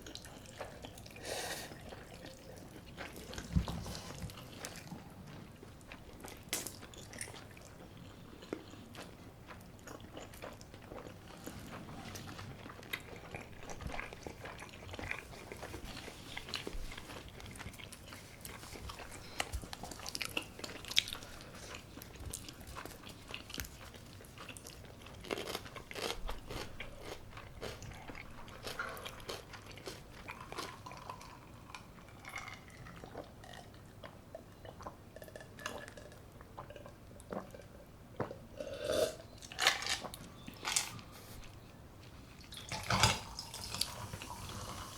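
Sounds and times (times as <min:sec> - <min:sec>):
person chewing crunchy food: 0:00.0 - 0:41.6.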